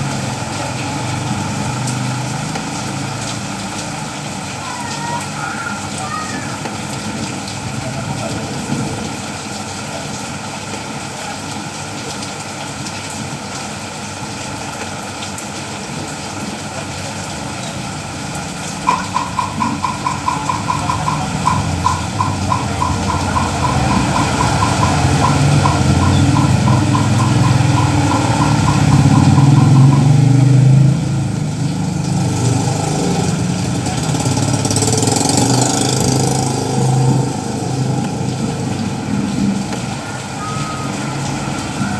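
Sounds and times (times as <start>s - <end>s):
rain: 0.0s - 41.9s
vehicle engine rumbling: 17.2s - 41.9s
rapid electronic beeping: 18.8s - 30.3s.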